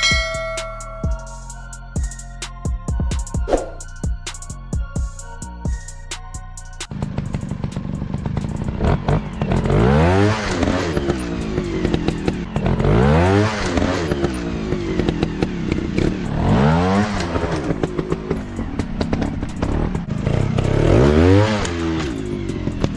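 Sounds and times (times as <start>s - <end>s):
trail bike engine revving: 6.9s - 22.9s.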